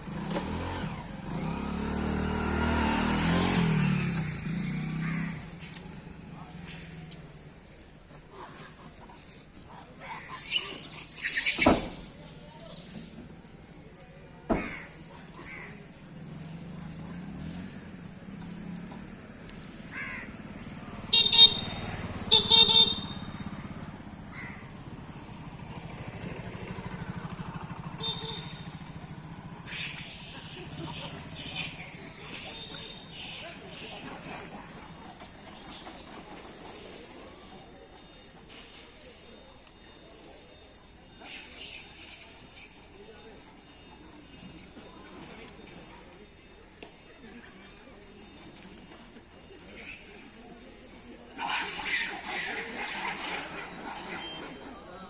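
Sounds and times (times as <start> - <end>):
vehicle engine passing by: 0.0 - 7.4, 15.2 - 38.4
vehicle horns honking: 21.0 - 23.6, 27.9 - 28.8.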